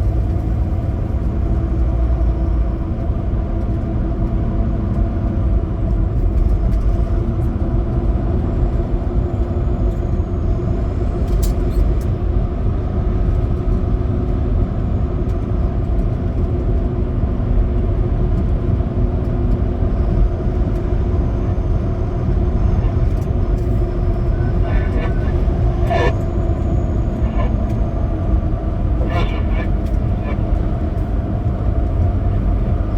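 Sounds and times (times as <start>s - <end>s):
road rumble: 20.7s - 32.9s
truck engine drone: 21.3s - 32.9s.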